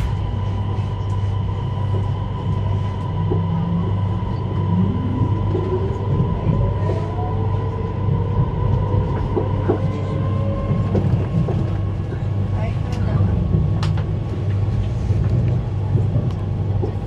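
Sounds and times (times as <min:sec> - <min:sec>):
train cabin rumble and hum: 0:00.0 - 0:17.0.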